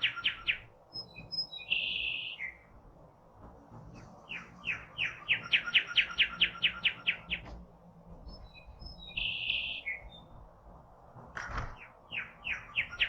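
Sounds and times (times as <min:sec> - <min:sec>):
songbird chirping: 0:00.0 - 0:02.8, 0:04.0 - 0:07.5, 0:08.2 - 0:10.4, 0:11.6 - 0:13.0.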